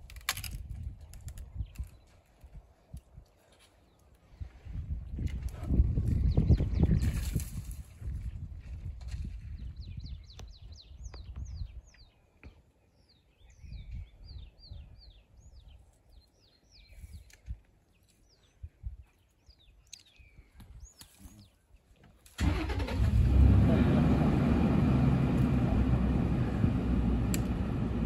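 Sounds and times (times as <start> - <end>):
birds chirping: 9.6 - 22.0
low rumble: 23.0 - 28.0.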